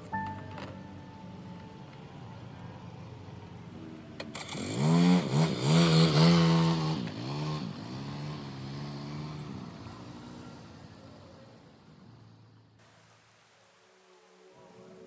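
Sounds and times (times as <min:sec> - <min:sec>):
vehicle engine revving: 0:04.2 - 0:12.6.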